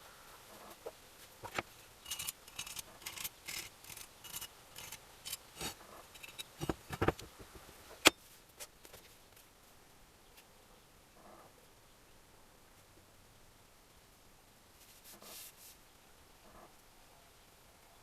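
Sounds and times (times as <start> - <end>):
metal parts and tools clicking: 1.4 - 7.2.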